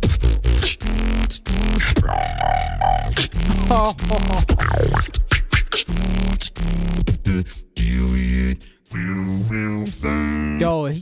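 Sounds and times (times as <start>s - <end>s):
beatboxing bass drone: 0.0s - 8.6s
short bending sung notes: 0.6s - 8.3s
held higher vocal note: 2.0s - 5.0s.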